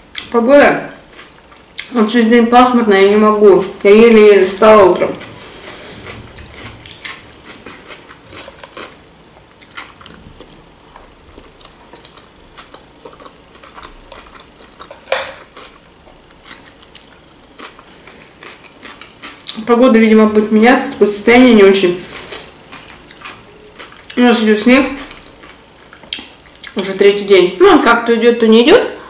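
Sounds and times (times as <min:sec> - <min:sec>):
close-up chewing and biting: 0:05.1 - 0:09.0, 0:09.6 - 0:19.6, 0:22.1 - 0:24.2.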